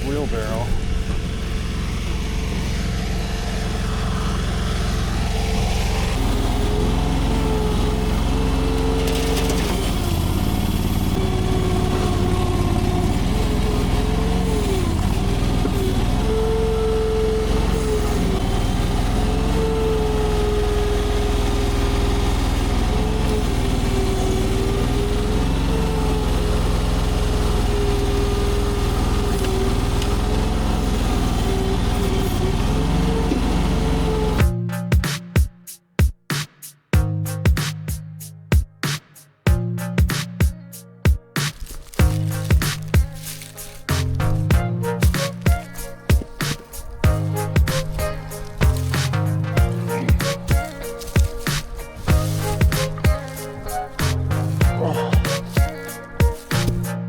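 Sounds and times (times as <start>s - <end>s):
track loader engine running: 0.0s - 34.6s, 39.5s - 57.0s.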